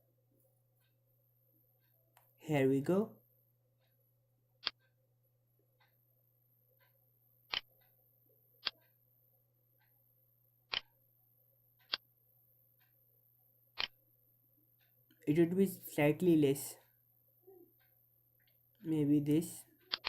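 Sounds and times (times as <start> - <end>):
computer mouse clicking: 7.5 - 7.9, 11.8 - 12.0.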